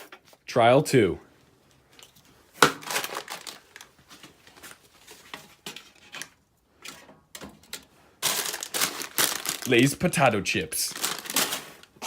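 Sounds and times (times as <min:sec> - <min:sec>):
objects being handled: 0:01.6 - 0:09.8, 0:10.9 - 0:12.0
loud crinkling rustle: 0:02.8 - 0:06.4, 0:07.6 - 0:10.1, 0:10.8 - 0:12.0.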